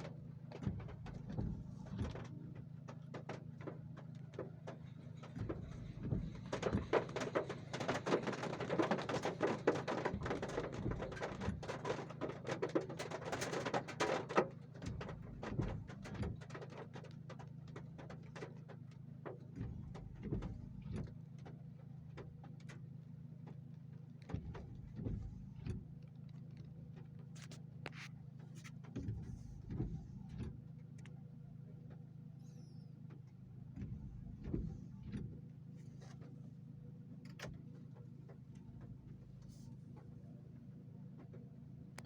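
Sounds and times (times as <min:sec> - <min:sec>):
heavy rain drumming on car roof: 0:00.0 - 0:21.2.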